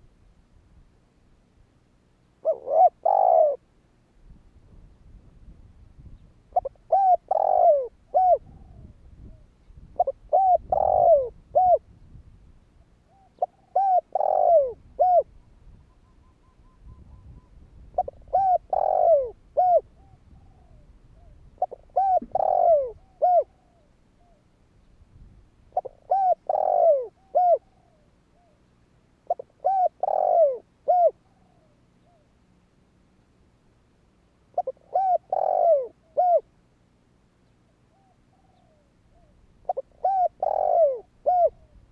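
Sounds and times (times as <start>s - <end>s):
dove cooing: 2.4s - 3.6s, 6.5s - 12.0s, 13.1s - 15.4s, 16.5s - 24.4s, 25.7s - 28.6s, 29.2s - 32.3s, 34.5s - 36.5s, 37.9s - 41.9s.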